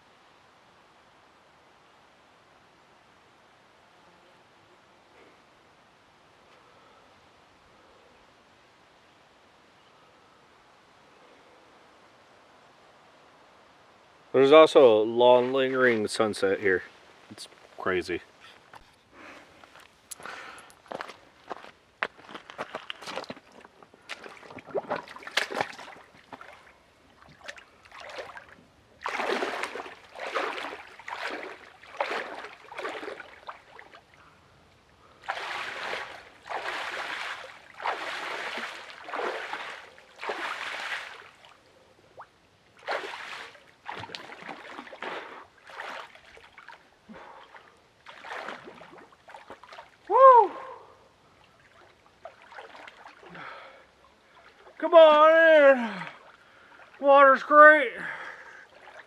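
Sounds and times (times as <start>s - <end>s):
water sloshing and splashing: 19.5s - 34.3s, 35.0s - 50.1s, 51.3s - 54.8s, 55.8s - 57.0s, 58.4s - 59.0s.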